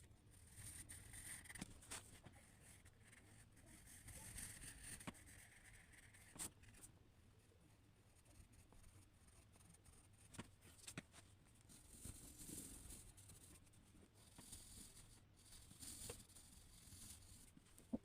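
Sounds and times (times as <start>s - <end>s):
drawing tool scratching paper: 0.3s - 6.9s, 11.7s - 17.5s.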